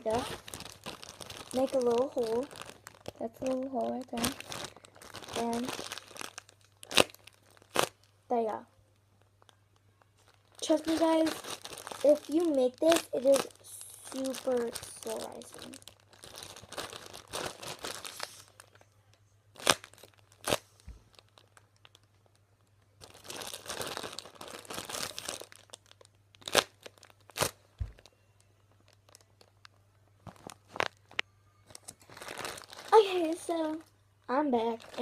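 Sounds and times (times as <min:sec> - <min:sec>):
plastic bag crinkling: 0:00.0 - 0:08.6, 0:09.2 - 0:18.8, 0:19.5 - 0:35.0.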